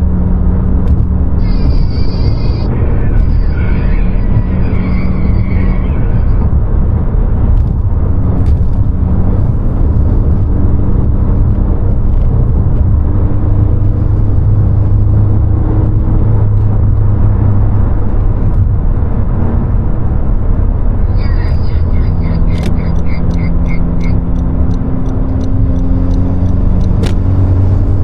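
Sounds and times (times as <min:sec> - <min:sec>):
car engine rumble: 0:00.0 - 0:28.0
road noise: 0:00.0 - 0:28.0
short clicks: 0:22.4 - 0:27.3.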